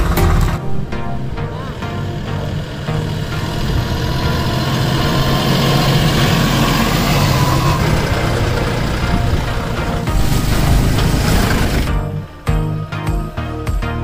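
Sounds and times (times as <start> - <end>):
tractor diesel engine running: 0.0 - 12.4.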